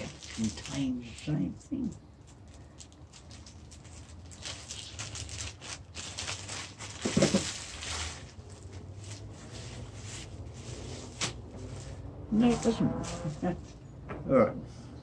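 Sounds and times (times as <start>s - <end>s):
plastic packet tearing and crinkling: 0.0s - 1.3s, 1.9s - 9.3s.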